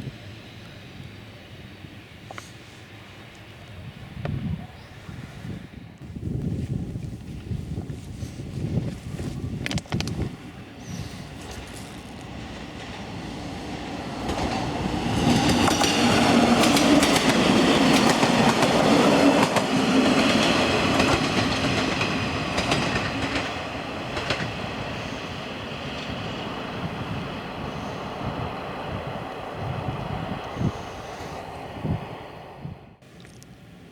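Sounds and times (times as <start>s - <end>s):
train wheels clicking over rails: 9.6s - 31.7s.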